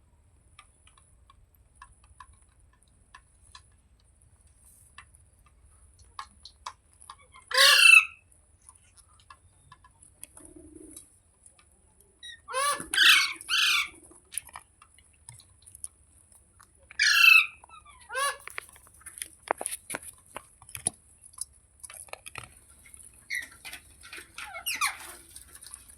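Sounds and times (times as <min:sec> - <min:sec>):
parrot squawking harshly: 0:07.5 - 0:08.2, 0:12.3 - 0:13.9, 0:17.0 - 0:18.5.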